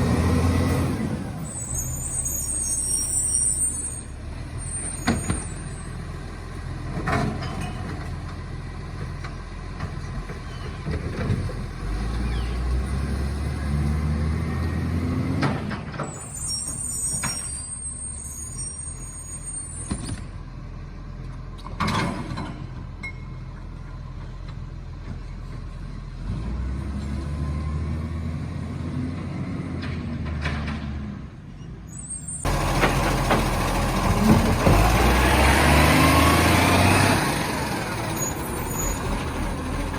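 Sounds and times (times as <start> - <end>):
truck diesel engine revving: 0.0 - 6.9, 11.3 - 15.6, 32.4 - 39.9
high squeals: 1.4 - 6.0, 16.1 - 20.2, 31.9 - 35.0, 38.0 - 39.5.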